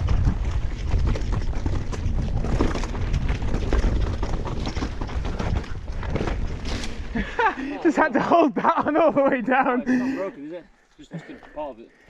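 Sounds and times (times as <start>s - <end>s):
wind rumble on microphone: 0.0s - 7.3s
bike clicks and rattles: 0.0s - 7.5s.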